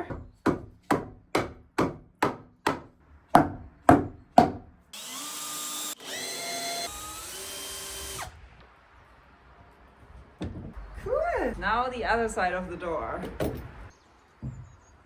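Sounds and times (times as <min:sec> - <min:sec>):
hammer striking wood: 0:00.0 - 0:04.7
power drill running: 0:04.9 - 0:08.4.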